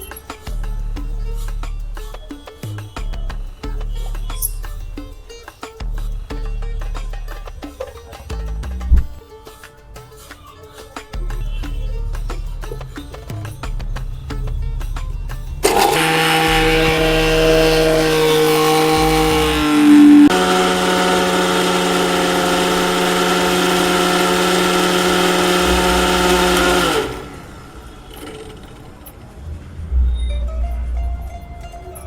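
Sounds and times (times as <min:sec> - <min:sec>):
mixer grinder motor whine: 0:15.6 - 0:27.4.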